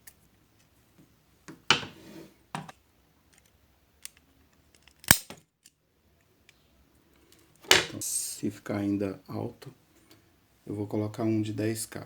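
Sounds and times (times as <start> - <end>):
plastic toy handling: 2.6 - 6.6
wire being snipped: 5.0 - 5.4.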